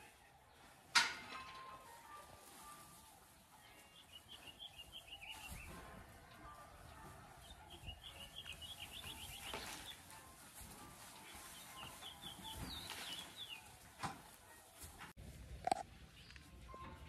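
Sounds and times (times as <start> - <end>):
bird chirping: 3.8 - 5.7, 7.4 - 10.1, 11.2 - 13.7.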